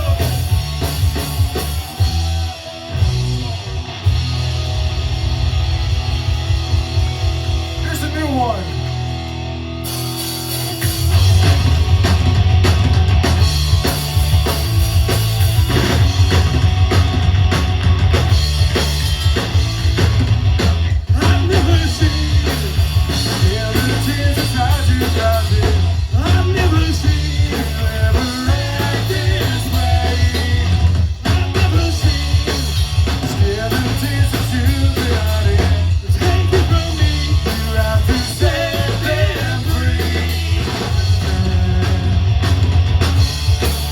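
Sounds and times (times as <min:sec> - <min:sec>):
live rock music: 0:00.0 - 0:43.9.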